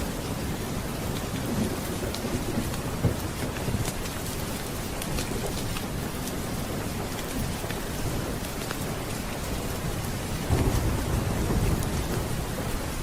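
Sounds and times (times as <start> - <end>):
steady rain: 0.0 - 13.0
rumble of thunder: 10.4 - 13.0.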